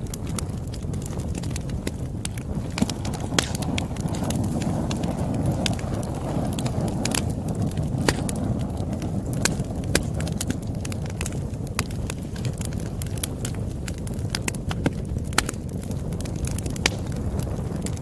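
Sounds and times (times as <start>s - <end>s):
wood fire roaring and crackling: 0.0s - 18.0s.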